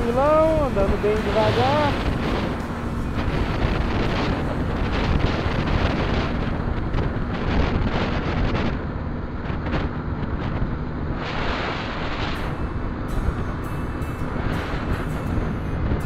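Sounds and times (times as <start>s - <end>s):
music: 0.0s - 6.4s, 12.2s - 16.0s
motorcycle engine humming: 0.0s - 16.0s
wind buffeting the microphone: 0.0s - 16.0s.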